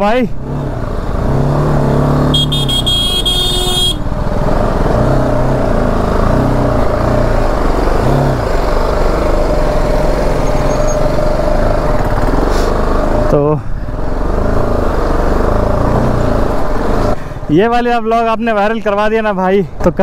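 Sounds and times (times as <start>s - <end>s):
motorcycle engine revving: 0.4s - 17.3s
high-pitched horn: 2.3s - 4.0s.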